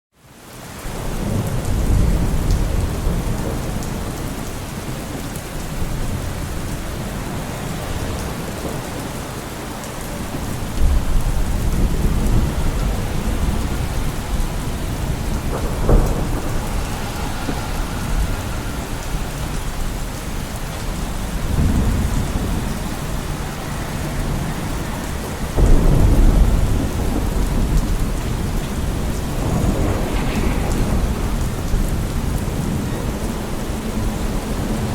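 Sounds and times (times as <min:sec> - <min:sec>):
heavy rain falling: 0:00.2 - 0:34.9
low rumbling swells: 0:10.3 - 0:34.9.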